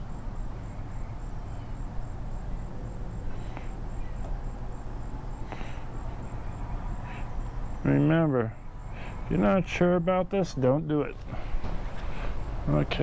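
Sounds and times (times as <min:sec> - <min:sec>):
insect chirping: 0:00.0 - 0:10.2
low steady hum: 0:00.0 - 0:13.0.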